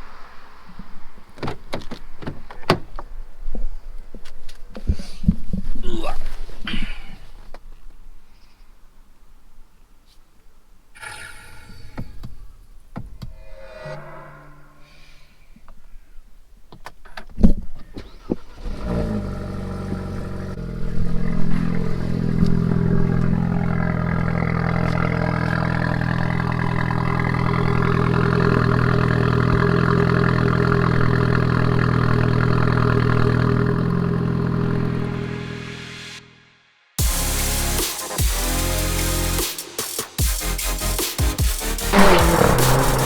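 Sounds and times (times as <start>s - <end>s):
car engine cranking and starting: 17.8s - 35.3s, 41.7s - 43.0s
car engine fast idle: 18.1s - 35.1s, 41.7s - 43.0s.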